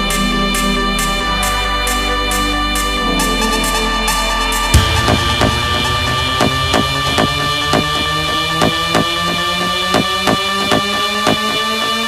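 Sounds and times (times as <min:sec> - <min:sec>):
electronic dance music: 0:00.0 - 0:12.0
held synth chords: 0:00.0 - 0:12.0
kick drum beat: 0:04.7 - 0:11.4.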